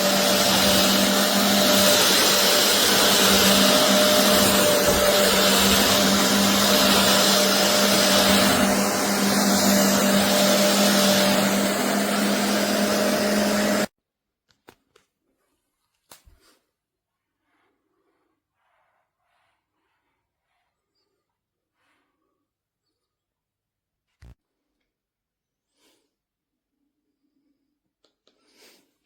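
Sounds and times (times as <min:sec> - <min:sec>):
vacuum motor humming: 0:00.0 - 0:13.9.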